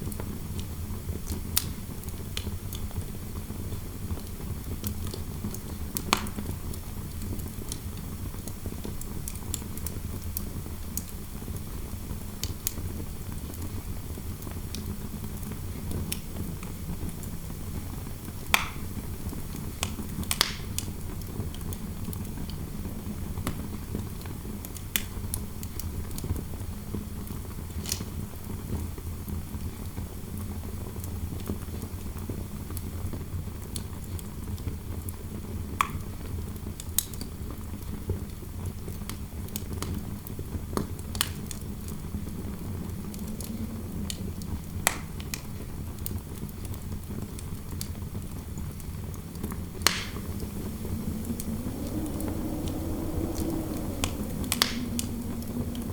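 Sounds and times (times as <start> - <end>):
wood fire crackling and popping: 17.1 - 21.7, 39.0 - 55.9
wind rumble: 41.4 - 46.0, 48.5 - 55.9.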